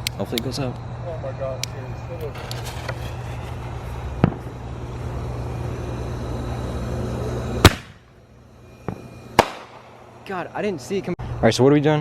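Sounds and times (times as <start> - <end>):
firework mortar launch thump: 4.2 - 4.6, 7.6 - 8.0, 8.8 - 9.8
firework shell bang: 4.2 - 4.6, 7.6 - 8.2, 8.8 - 10.0.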